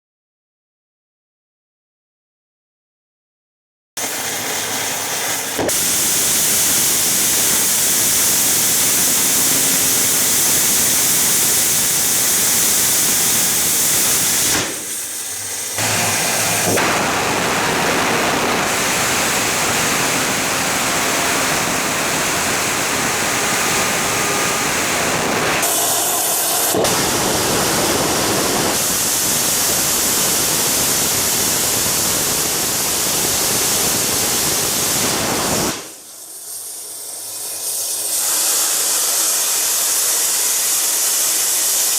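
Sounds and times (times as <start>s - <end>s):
rocket engine roaring: 5.5s - 35.9s.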